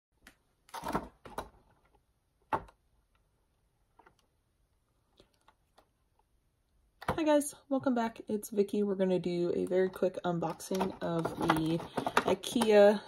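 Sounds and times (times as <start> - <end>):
objects knocking and clicking: 9.8 - 13.0.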